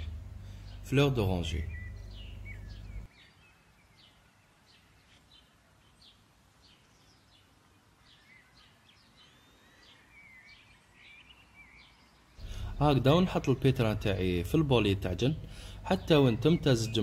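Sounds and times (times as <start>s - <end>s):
low hum: 0.0s - 3.1s, 12.4s - 17.0s
faint birds chirping: 0.0s - 17.0s.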